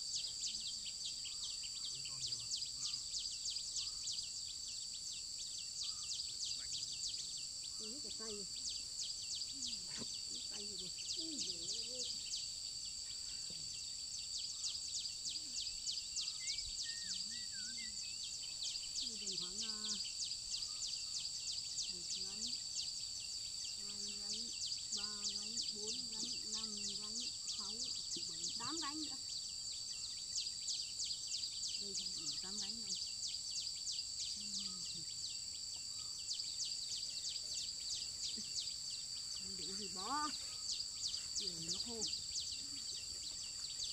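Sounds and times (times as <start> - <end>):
pulsing insect chorus: 0.0 - 43.9
faint voice: 9.6 - 12.2.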